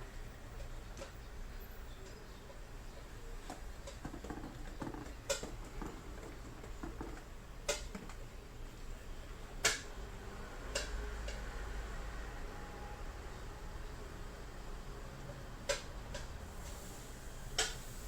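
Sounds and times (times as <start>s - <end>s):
faint rustling and ticking: 3.2s - 8.4s.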